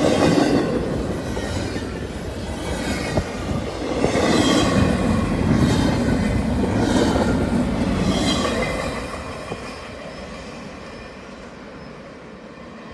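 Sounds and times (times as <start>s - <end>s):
train cars rolling on rails: 0.0s - 12.9s.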